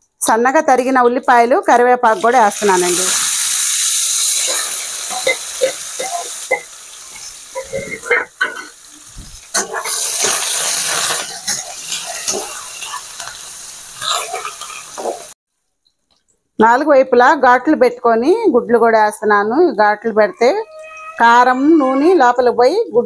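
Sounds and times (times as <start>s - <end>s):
onions sizzling in hot oil: 2.1s - 15.4s
metal spoon scraping a pan: 3.0s - 8.8s, 9.5s - 15.3s.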